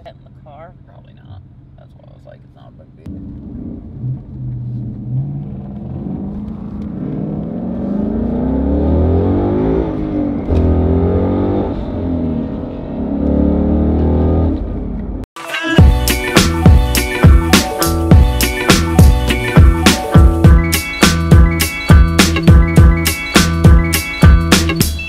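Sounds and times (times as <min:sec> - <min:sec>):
car engine accelerating hard: 0:03.1 - 0:15.2.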